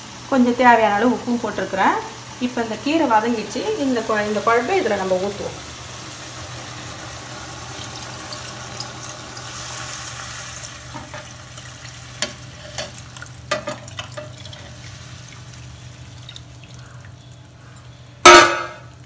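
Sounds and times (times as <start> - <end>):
food sizzling in a hot pan: 0.0 - 16.1
spoon stirring and knocking pan: 18.3 - 18.8.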